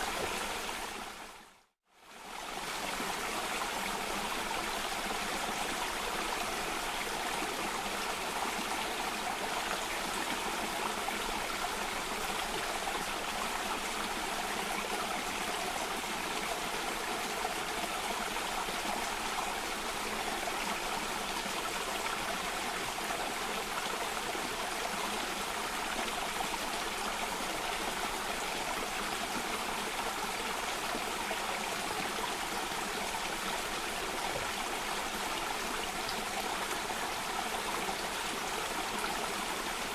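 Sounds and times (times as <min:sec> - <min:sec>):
water flowing in a stream: 0:00.0 - 0:39.9.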